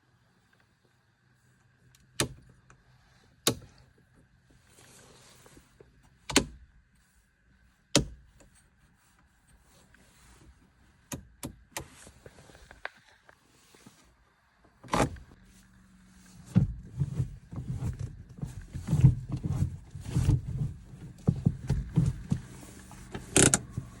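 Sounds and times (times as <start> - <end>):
car mechanical clunk: 16.4 - 24.0.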